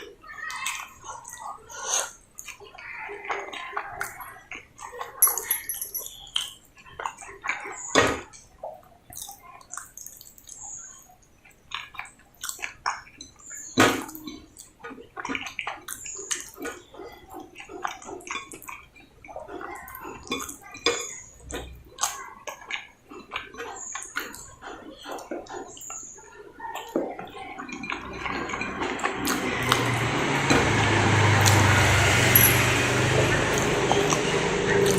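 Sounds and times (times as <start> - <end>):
wet chewing and mouth smacks: 9.1 - 13.4.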